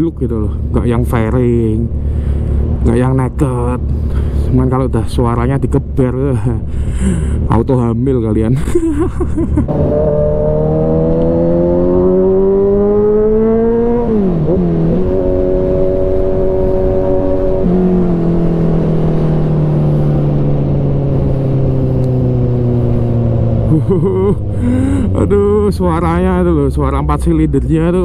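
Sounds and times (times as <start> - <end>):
motorcycle engine accelerating: 9.6 - 26.1.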